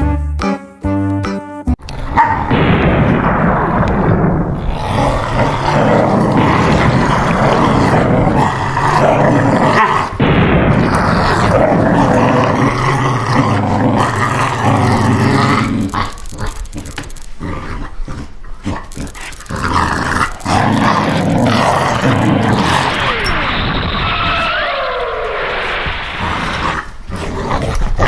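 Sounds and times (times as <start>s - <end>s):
animal growling: 3.2s - 28.0s
falling sweeps: 21.9s - 26.8s.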